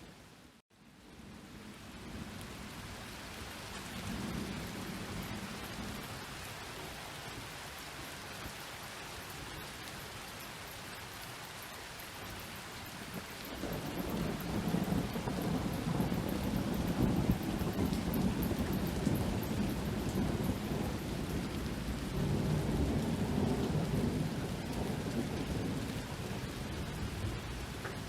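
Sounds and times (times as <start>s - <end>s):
steady rain falling: 0.0s - 28.0s
low thunder rumble: 3.9s - 6.1s, 13.1s - 28.0s.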